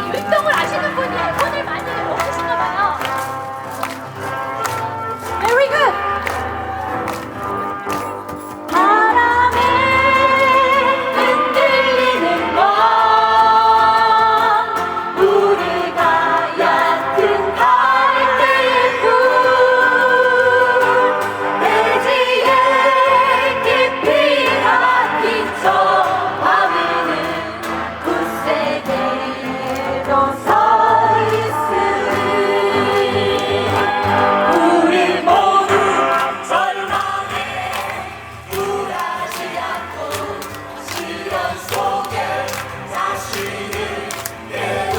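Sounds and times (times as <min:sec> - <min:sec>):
guitar: 0:00.0 - 0:44.9
keyboard: 0:00.0 - 0:44.9
group of voices singing: 0:08.7 - 0:44.9.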